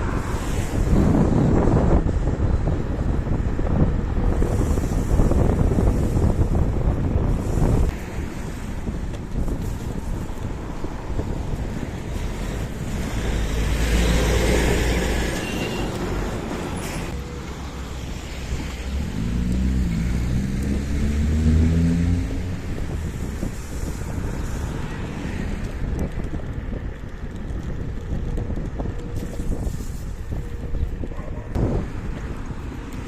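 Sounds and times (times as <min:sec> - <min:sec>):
road traffic passing: 0:00.0 - 0:33.0
wind on microphone: 0:00.0 - 0:33.0
passing vehicle engine: 0:12.1 - 0:26.0.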